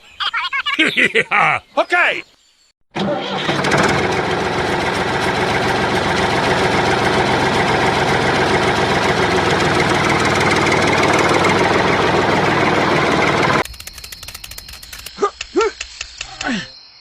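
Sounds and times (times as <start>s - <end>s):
tractor engine idling: 3.0s - 15.5s.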